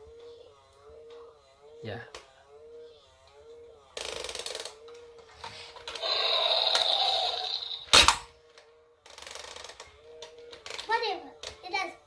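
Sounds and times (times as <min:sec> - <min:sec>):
toy motor hum: 0:05.7 - 0:08.0.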